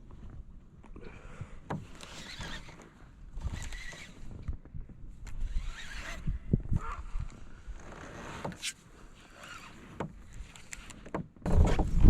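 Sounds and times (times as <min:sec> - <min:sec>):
wind buffeting microphone: 0:03.2 - 0:07.8, 0:11.4 - 0:12.0
boat clicks and knocks: 0:09.9 - 0:12.0.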